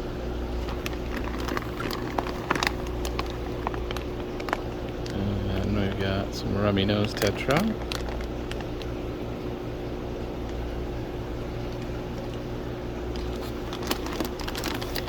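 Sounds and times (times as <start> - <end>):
mechanical hum of equipment: 0.0 - 15.0.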